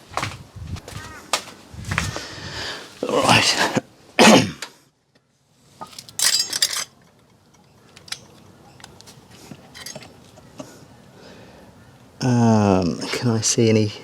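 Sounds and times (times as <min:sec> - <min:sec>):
small hard objects clinking: 0:05.9 - 0:07.1.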